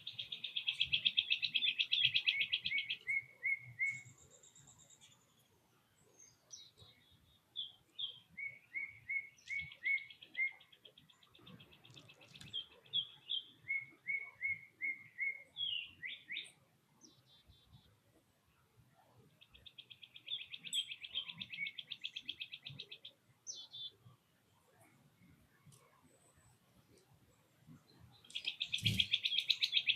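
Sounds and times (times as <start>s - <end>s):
songbirds whistling: 0.0s - 4.3s, 7.6s - 10.8s, 11.5s - 16.6s, 28.2s - 29.9s.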